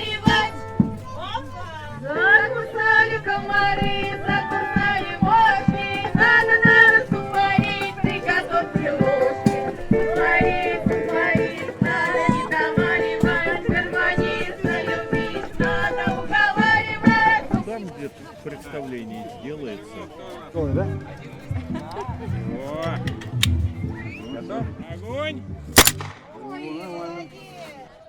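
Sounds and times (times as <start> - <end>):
folk singing: 0.0 - 17.8.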